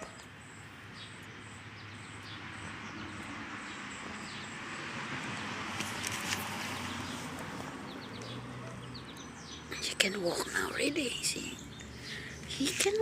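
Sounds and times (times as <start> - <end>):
passing motor vehicle rushing: 0.9 - 9.7.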